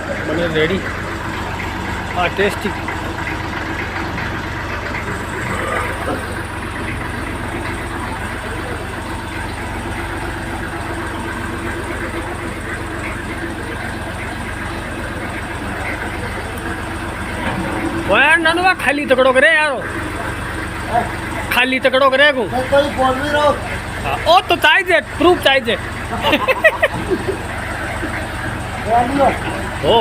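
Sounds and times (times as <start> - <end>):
tractor engine idling: 0.0 - 30.0.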